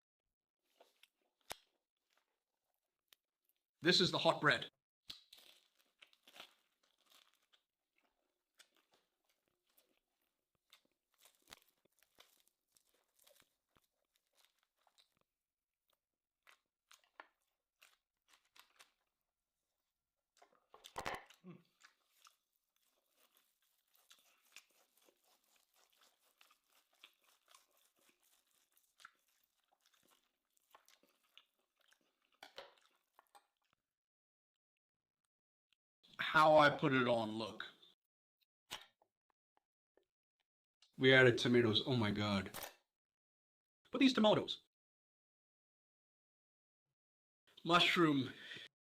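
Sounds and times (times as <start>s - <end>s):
crunching and chewing food: 0.6s - 3.7s, 5.0s - 33.9s.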